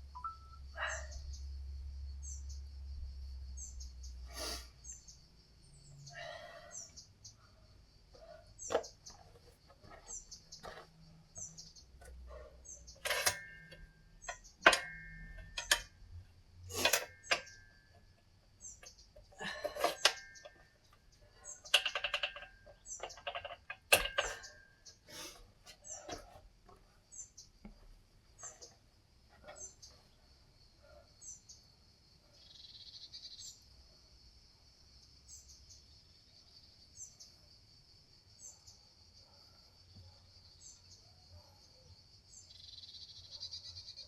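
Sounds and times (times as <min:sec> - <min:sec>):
dumbbells clinking and clanking: 0:08.2 - 0:27.8
bird chirping: 0:32.4 - 0:33.6.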